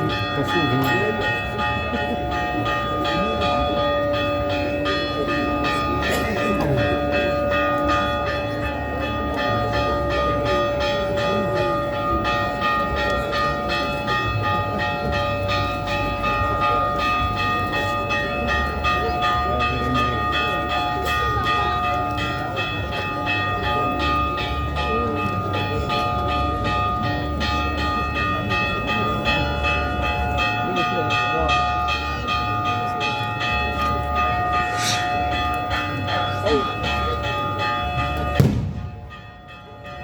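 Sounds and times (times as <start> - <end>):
bells ringing: 0.0 - 40.0.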